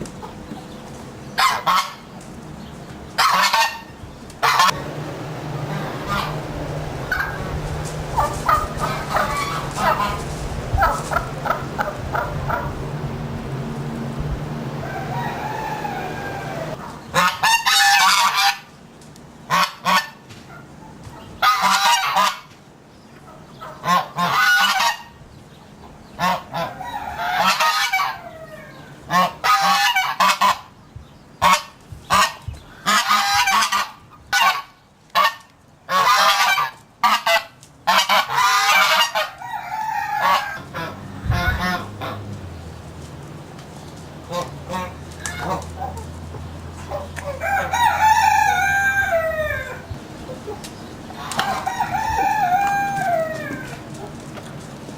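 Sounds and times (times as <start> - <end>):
birds calling loudly: 0.0 - 54.9
soft bird calls: 0.0 - 54.9
low hum: 3.9 - 16.9.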